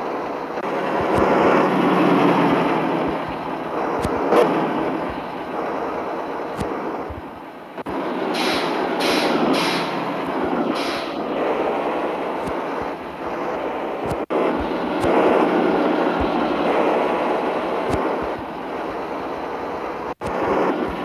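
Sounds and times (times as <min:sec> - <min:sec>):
truck engine and road noise: 0:00.0 - 0:21.0
air hisses: 0:08.3 - 0:14.3.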